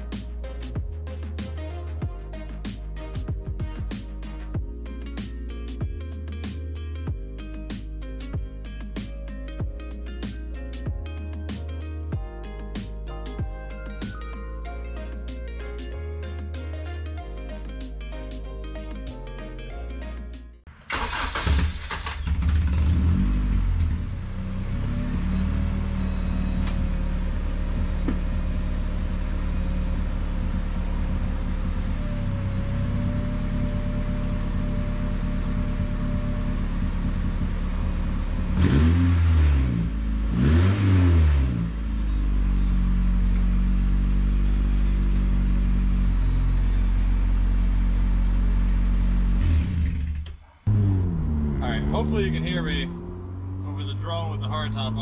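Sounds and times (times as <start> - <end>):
car engine starting: 20.0 - 55.0
car engine revving: 20.9 - 55.0.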